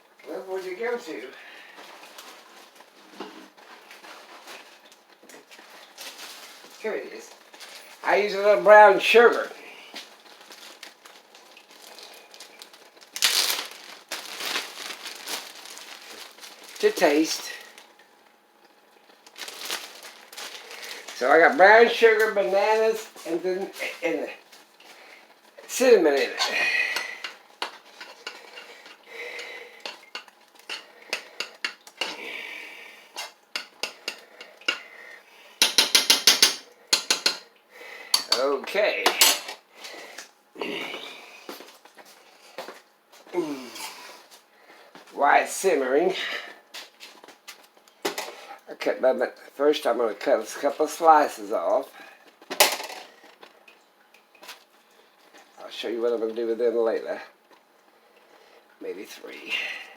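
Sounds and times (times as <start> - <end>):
bag of sugar rustling: 0.5 - 18.0, 19.0 - 27.2
spoon stirring in a pot: 26.4 - 32.2, 33.1 - 34.9, 35.6 - 38.4.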